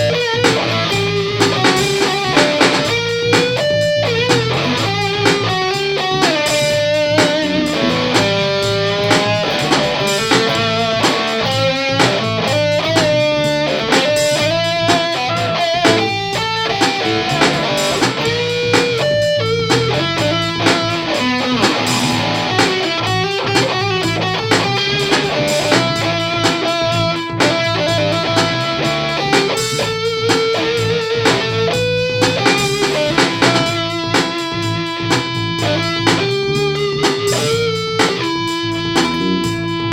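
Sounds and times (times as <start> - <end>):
distorted electric guitar: 0.0 - 39.9.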